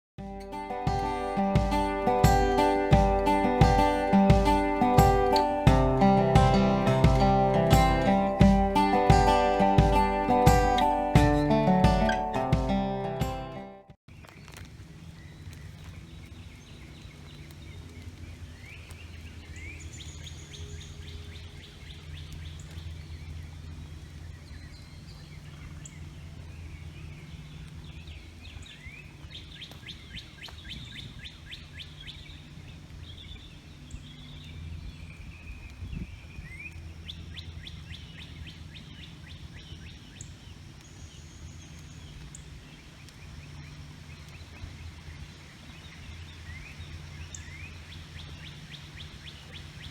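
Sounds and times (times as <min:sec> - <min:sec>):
steady low hum: 0:00.2 - 0:13.7
songbirds singing: 0:00.4 - 0:13.2, 0:14.1 - 0:49.9.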